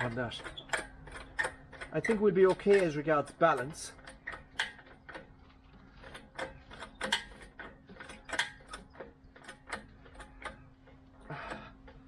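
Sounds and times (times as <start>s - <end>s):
metal clamp clicking and knocking: 0.0s - 3.0s, 3.6s - 5.4s, 6.0s - 10.6s.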